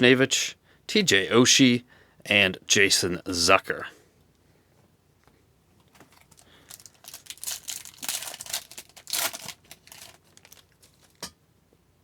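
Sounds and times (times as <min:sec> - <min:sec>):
card pack wrapper crinkling: 0:06.0 - 0:11.3.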